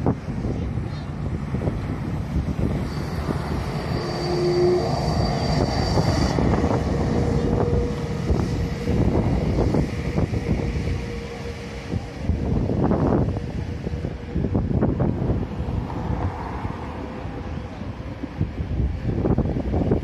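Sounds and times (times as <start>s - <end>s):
wind buffeting microphone: 0.0s - 20.0s
faint high whine: 2.4s - 14.4s.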